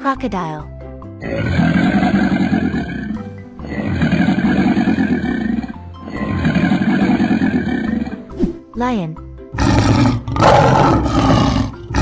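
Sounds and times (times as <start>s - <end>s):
children's background music: 0.0s - 12.0s
animal growls: 1.2s - 8.3s, 9.5s - 12.0s.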